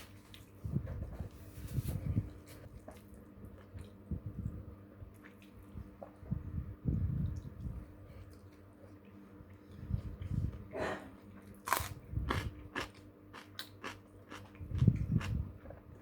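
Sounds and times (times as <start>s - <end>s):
person chewing crunchy food: 8.2s - 16.0s.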